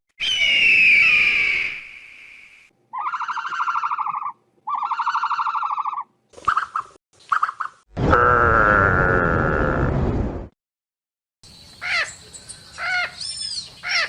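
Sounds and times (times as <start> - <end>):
high pitched animal call: 2.9 - 6.1
buzzy pulsing animal calls: 2.9 - 6.8.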